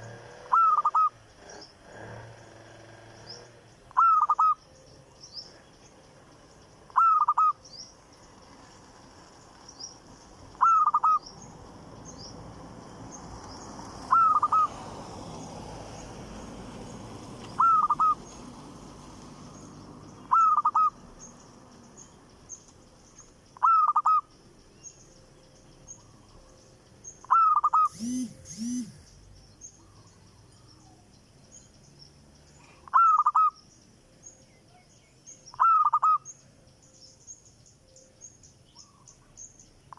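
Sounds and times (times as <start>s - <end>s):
caged bird calling: 0.0s - 8.4s, 9.7s - 16.0s, 16.8s - 18.6s, 19.4s - 31.0s, 32.6s - 33.8s, 34.7s - 36.4s
small birds chirping: 0.0s - 39.9s
bird double call: 0.5s - 1.1s, 17.6s - 18.2s, 27.3s - 29.2s.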